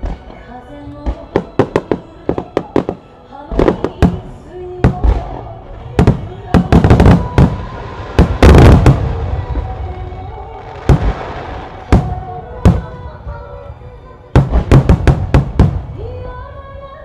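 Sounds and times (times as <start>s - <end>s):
music: 0.0s - 17.0s
fireworks bangs: 6.0s - 13.1s, 14.4s - 16.0s.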